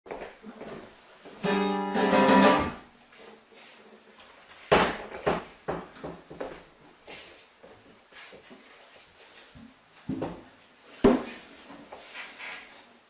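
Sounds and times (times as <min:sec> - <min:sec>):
acoustic guitar strumming: 0:01.4 - 0:02.9.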